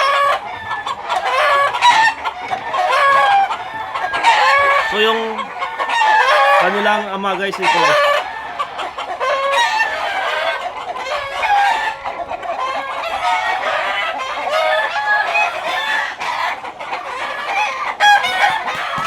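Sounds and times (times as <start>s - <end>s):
rooster crowing: 0.0s - 6.8s, 17.2s - 19.0s
chickens clucking: 0.0s - 19.0s.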